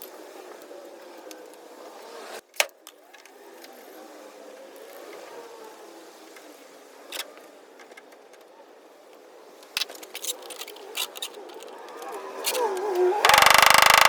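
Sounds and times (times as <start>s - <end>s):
metal tools clicking: 9.8s - 11.7s.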